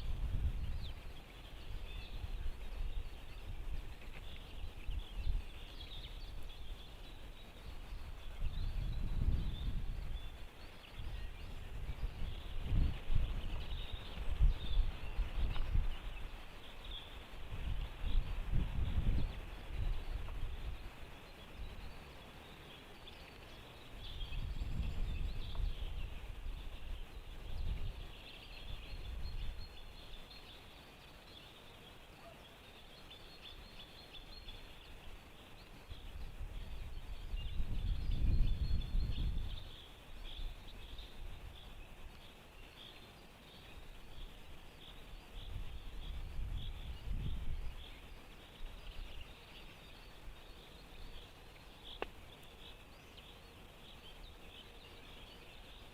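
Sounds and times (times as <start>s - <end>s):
wind buffeting microphone: 0.0s - 21.9s, 23.9s - 29.8s, 35.9s - 42.0s, 43.8s - 49.4s
distant songbirds chirping: 0.0s - 55.9s.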